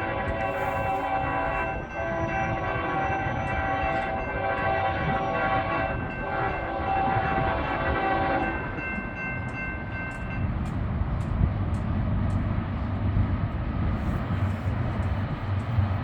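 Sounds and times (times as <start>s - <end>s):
locomotive air horn chord: 0.0s - 8.6s
passing train rumble: 0.0s - 16.0s.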